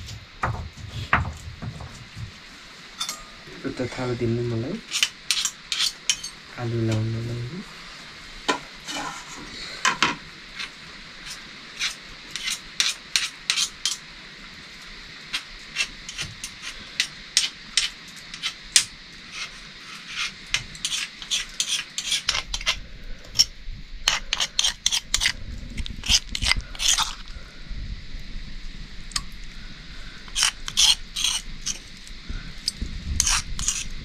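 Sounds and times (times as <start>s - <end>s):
faint steady hiss: 0.0s - 34.0s
metal utensil clinking on cookware: 3.0s - 3.4s, 4.9s - 6.4s.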